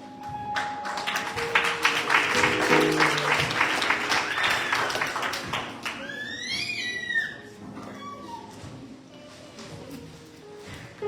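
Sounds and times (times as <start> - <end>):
congregation clapping: 0.5 - 6.4
organ chords: 1.3 - 5.1.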